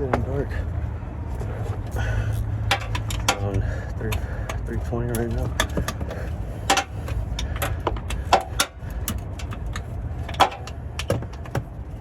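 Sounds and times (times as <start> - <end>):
metallic clicks and clanks: 2.3 - 12.0.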